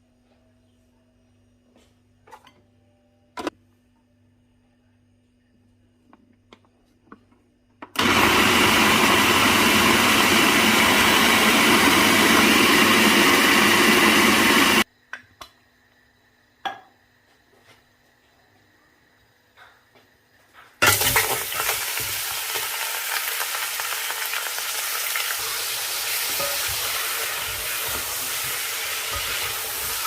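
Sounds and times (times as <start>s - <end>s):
electric blender running: 8.0s - 14.8s.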